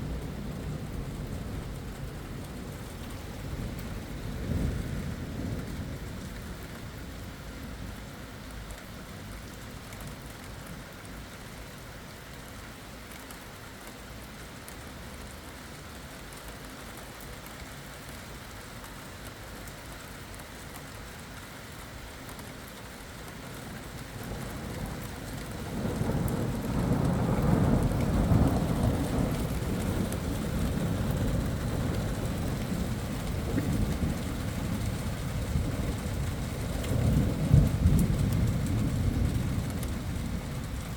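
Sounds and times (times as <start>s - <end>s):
steady rain falling: 0.0s - 40.9s
thunder rolling: 25.7s - 40.9s.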